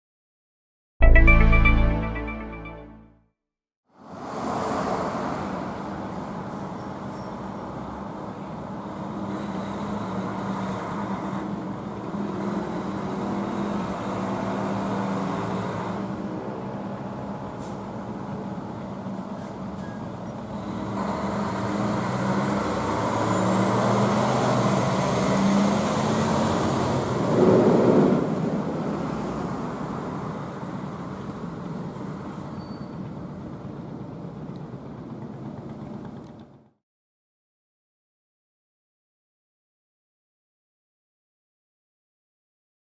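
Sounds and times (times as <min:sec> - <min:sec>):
fire engine diesel engine: 0:05.4 - 0:36.7.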